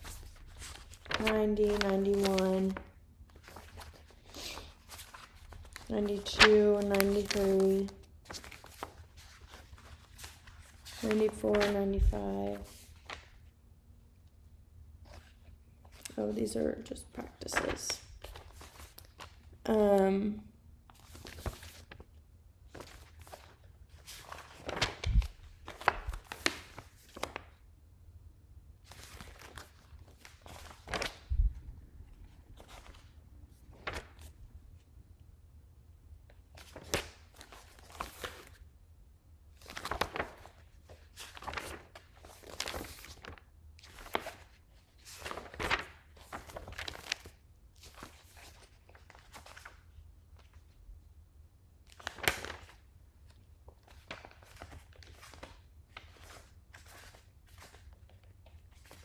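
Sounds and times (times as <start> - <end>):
paper pages rustling: 0.0 - 13.4, 17.4 - 19.5, 20.9 - 27.6, 28.9 - 31.4, 32.5 - 34.4, 36.5 - 38.7, 39.6 - 50.7, 51.9 - 59.0.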